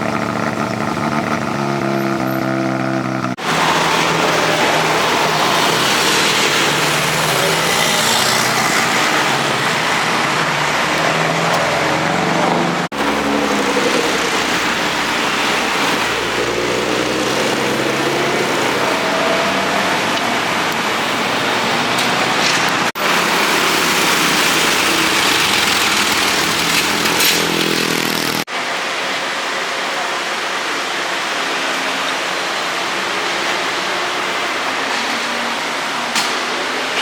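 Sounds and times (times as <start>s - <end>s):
loud car driving past: 0.0s - 28.3s
street traffic: 0.0s - 37.0s.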